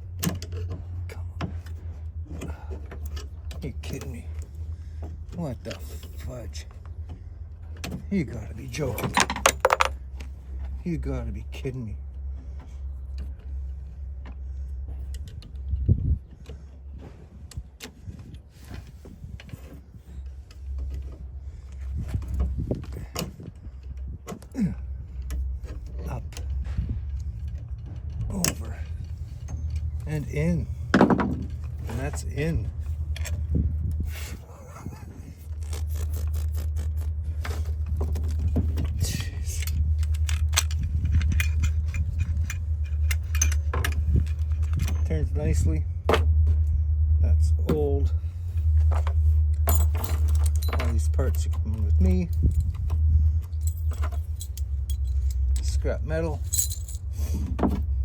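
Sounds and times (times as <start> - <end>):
steady low hum: 0.0 - 58.0
steady low rumble: 0.0 - 58.0
small metal lock parts clicking: 8.8 - 10.3, 35.4 - 45.1, 48.6 - 55.8, 56.4 - 57.7.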